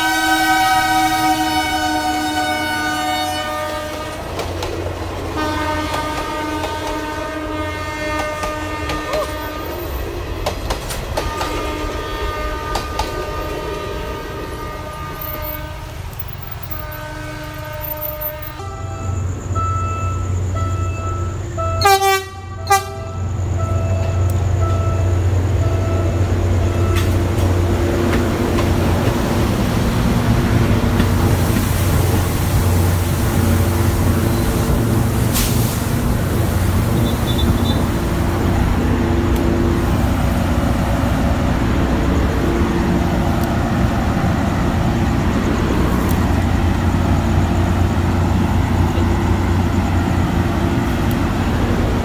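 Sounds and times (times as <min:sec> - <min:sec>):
train horn toots: 0:00.0 - 0:04.3, 0:05.3 - 0:10.0, 0:11.2 - 0:27.2, 0:36.8 - 0:38.2
rail noise: 0:00.0 - 0:52.0
diesel engine drone: 0:23.2 - 0:52.0.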